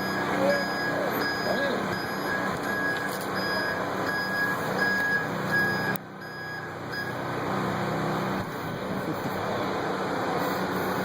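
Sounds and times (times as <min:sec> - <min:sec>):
reversing alarm beeping: 0:00.0 - 0:07.2
truck engine running: 0:00.0 - 0:11.0.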